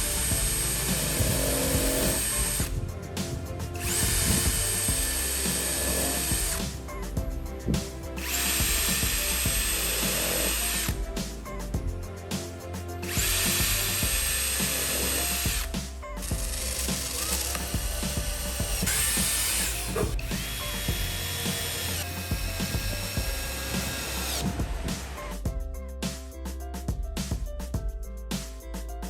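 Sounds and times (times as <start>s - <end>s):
power tool motor whining: 0.0s - 2.8s, 3.7s - 6.8s, 7.6s - 11.0s, 13.0s - 25.2s
background music: 0.0s - 29.0s.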